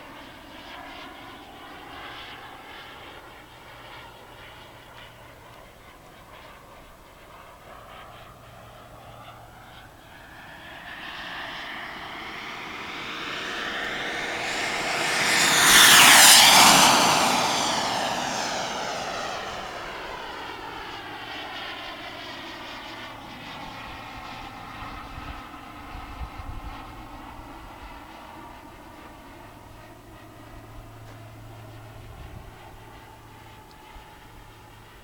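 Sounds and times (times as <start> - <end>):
model jet turbine rushing: 9.8 - 25.4.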